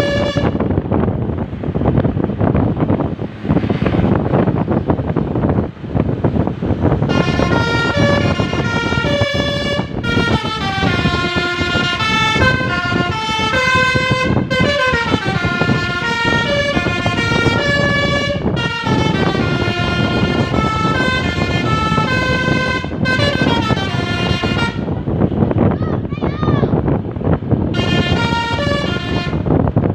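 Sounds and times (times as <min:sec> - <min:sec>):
bus horn playing a melody: 0:00.0 - 0:00.8, 0:06.9 - 0:25.0, 0:27.7 - 0:29.6
road and wind noise: 0:00.0 - 0:29.9.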